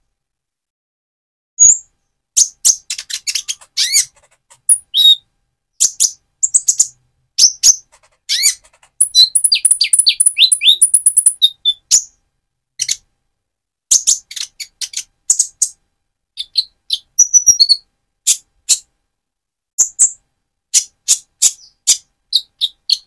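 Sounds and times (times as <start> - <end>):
sharp bird chirps: 1.6 - 5.2, 5.8 - 12.2, 16.4 - 18.8
bird singing high twittering: 2.9 - 5.2, 5.8 - 12.1.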